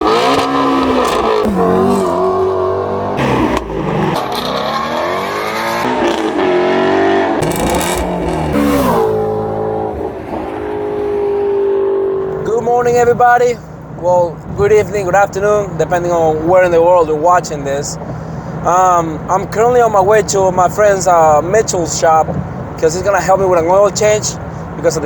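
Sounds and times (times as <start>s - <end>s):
car engine revving: 0.0s - 13.2s.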